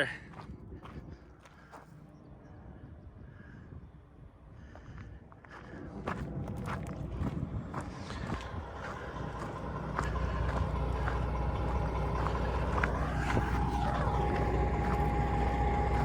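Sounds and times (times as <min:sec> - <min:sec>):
heavy vehicle engine rumbling: 0:00.0 - 0:16.0
steady whine: 0:05.7 - 0:16.0.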